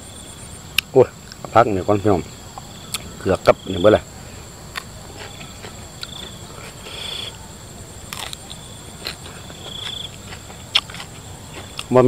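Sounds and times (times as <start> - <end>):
crickets chirping: 0.0 - 12.0
chewing crunchy vegetable stems: 4.7 - 7.4, 8.0 - 12.0.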